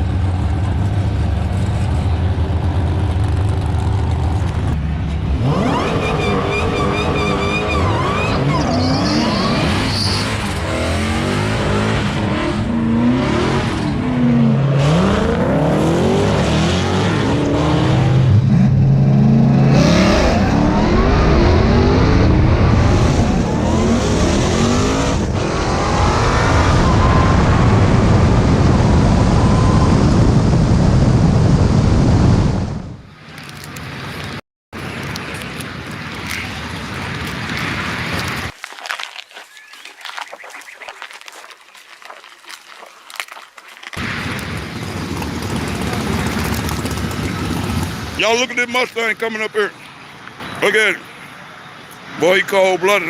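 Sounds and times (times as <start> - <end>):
car engines revving: 0.0 - 30.3, 44.0 - 53.0.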